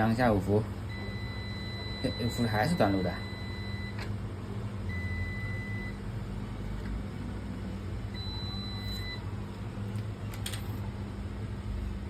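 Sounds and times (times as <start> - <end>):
steady low hum: 0.0 - 12.0
multimeter beeping: 0.9 - 4.0, 8.2 - 9.2.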